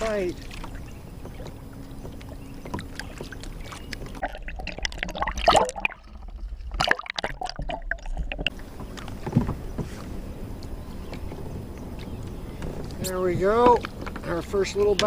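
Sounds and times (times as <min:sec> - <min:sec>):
water splashing and dripping: 0:00.0 - 0:15.0
small knocks and clicks: 0:10.6 - 0:15.0.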